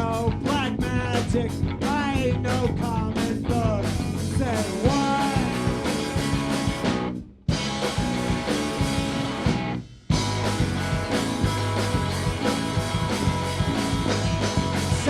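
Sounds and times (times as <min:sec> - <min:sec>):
person singing: 0:00.0 - 0:06.0
drums: 0:00.0 - 0:15.0
electric guitar: 0:00.0 - 0:15.0.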